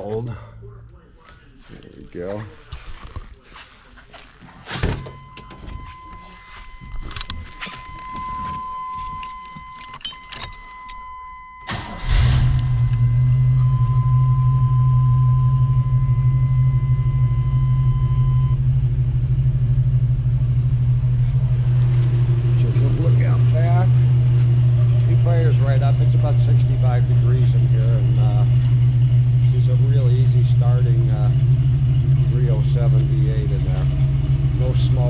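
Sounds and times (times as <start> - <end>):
car engine cranking and starting: 4.6 - 35.0
electronic warning tone: 4.8 - 18.6
keys jangling: 9.0 - 11.1
car engine idling: 11.7 - 35.0.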